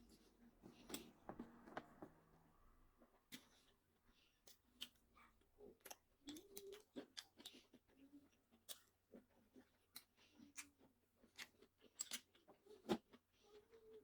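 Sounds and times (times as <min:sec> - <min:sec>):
chewing food: 0:03.2 - 0:14.0.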